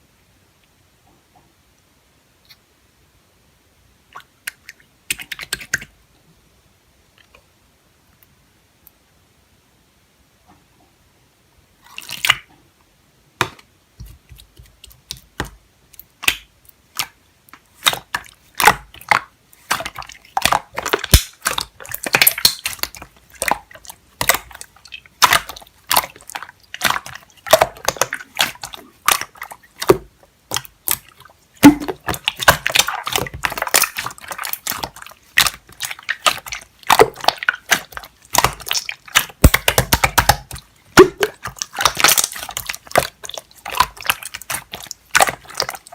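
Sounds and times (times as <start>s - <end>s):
squishy clicks of wet material: 14.0s - 45.9s.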